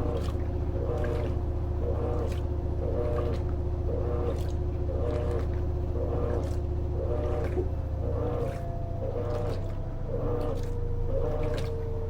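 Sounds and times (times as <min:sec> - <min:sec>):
washing machine motor hum: 0:00.0 - 0:12.0
water swishing in washing machine: 0:00.0 - 0:12.0.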